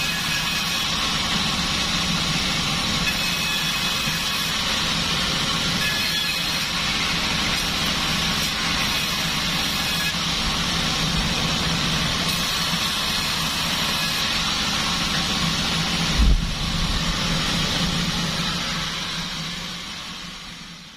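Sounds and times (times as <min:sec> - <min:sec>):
band sawmill running: 0:00.0 - 0:20.9
low thump: 0:16.2 - 0:16.6.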